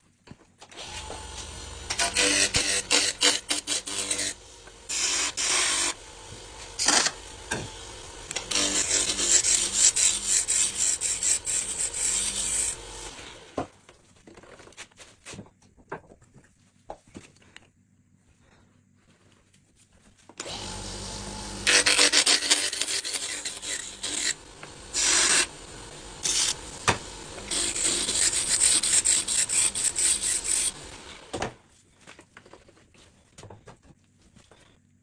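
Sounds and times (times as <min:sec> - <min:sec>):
lathe tool scraping wood: 0:00.8 - 0:13.6, 0:20.4 - 0:31.3
wood lathe motor hum: 0:00.8 - 0:13.6, 0:20.4 - 0:31.3.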